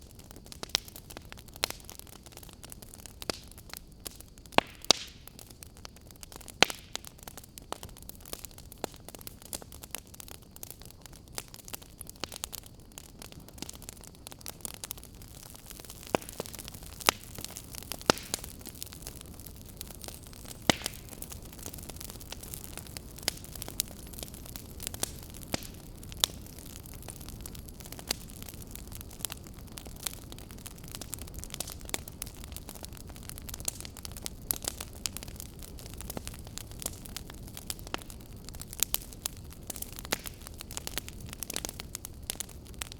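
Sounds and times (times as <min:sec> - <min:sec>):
fire crackling and popping: 0:00.0 - 0:42.9.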